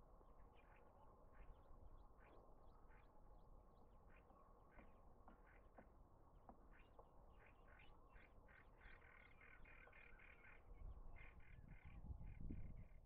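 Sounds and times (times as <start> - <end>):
rapid bird chatter: 6.5 - 12.9.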